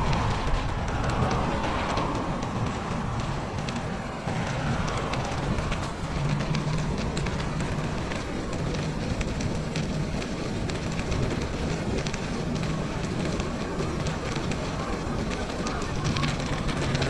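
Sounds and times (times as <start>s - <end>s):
wind rushing: 0.0s - 11.6s
bicycle clicks and rattles: 0.0s - 17.0s
bicycle tyre noise: 0.0s - 17.0s.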